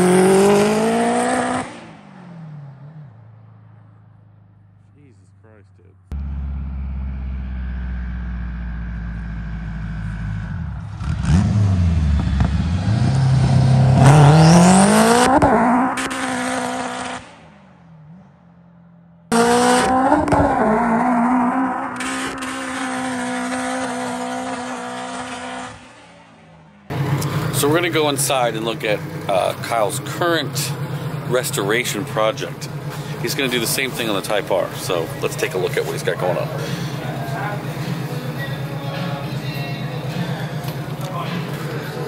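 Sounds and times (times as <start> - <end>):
car engine revving hard: 0.0 - 3.1, 9.6 - 17.5, 19.3 - 26.2
car engine idling: 2.0 - 12.7, 26.1 - 42.0.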